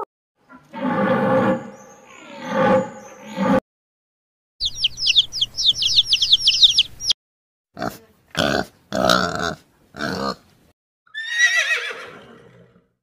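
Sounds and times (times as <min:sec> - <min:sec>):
baby chicks peeping: 0:04.6 - 0:07.2.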